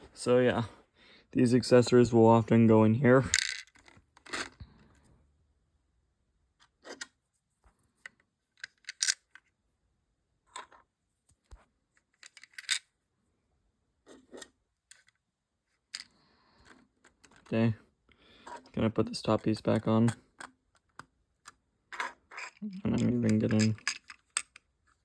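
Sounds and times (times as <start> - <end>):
plastic toy bricks clicking: 3.3 - 4.5, 8.6 - 9.3, 12.2 - 12.8, 20.4 - 24.7.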